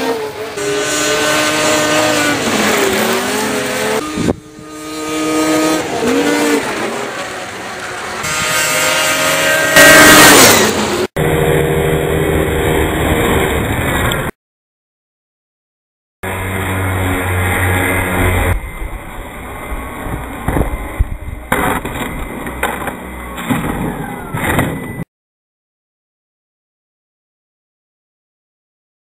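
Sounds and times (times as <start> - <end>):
electric ducted fans whining: 16.3 - 24.6.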